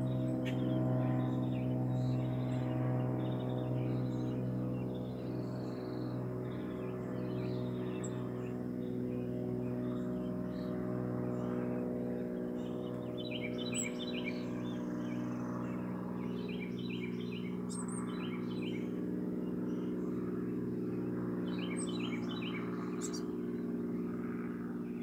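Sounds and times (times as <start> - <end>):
low mechanical hum: 0.0 - 25.0
songbird singing: 0.0 - 25.0.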